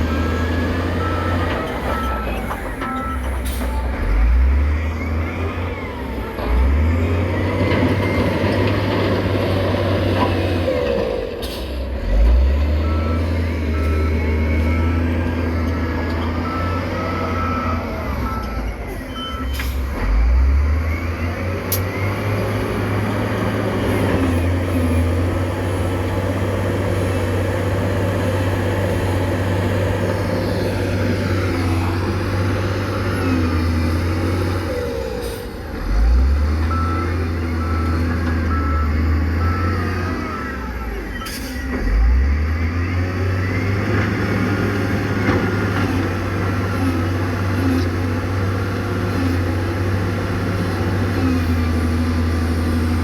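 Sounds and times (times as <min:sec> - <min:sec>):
reversing alarm beeping: 0:00.0 - 0:08.5, 0:12.7 - 0:23.0, 0:36.6 - 0:45.3
heavy diesel machinery engine: 0:00.0 - 0:53.0.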